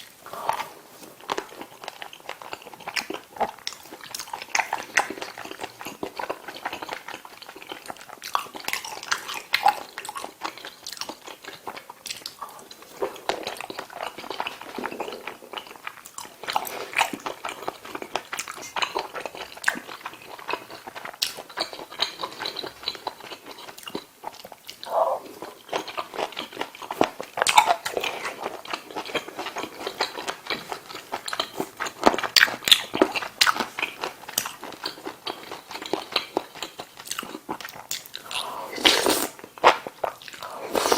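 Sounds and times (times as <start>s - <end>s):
mouth chewing food: 0.0s - 40.9s
wet clicking and crunching: 25.7s - 38.4s.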